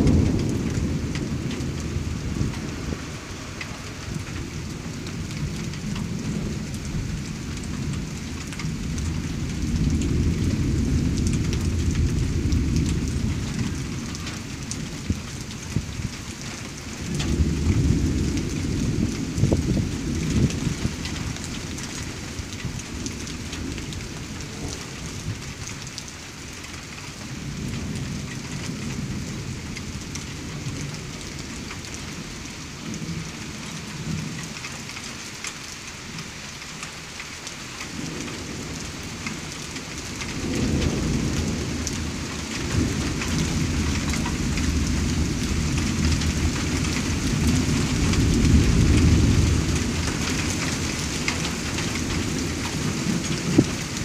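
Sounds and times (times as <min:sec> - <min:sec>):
thunder rumbling: 0:00.0 - 0:25.8, 0:37.9 - 0:54.0
rain hissing: 0:00.0 - 0:54.0.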